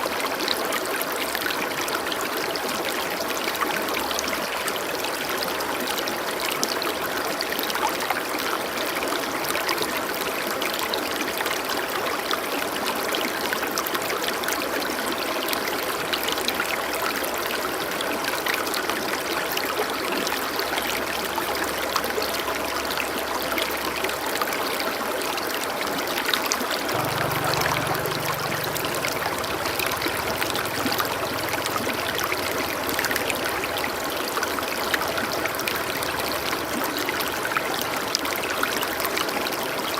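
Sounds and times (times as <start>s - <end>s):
stream water flowing: 0.0s - 39.9s
faint low tone: 26.9s - 33.6s.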